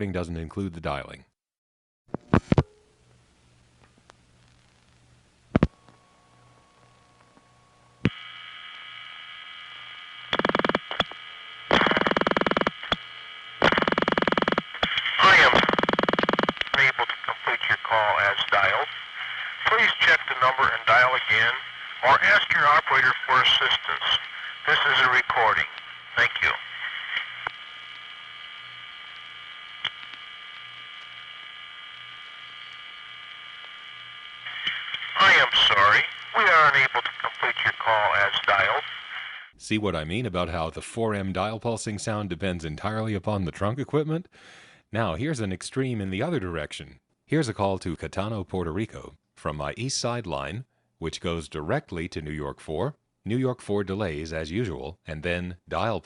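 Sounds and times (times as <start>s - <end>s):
phone line hum and hiss: 2.1s - 39.6s
rapid dial pulse clicking: 10.2s - 15.0s, 15.6s - 16.8s.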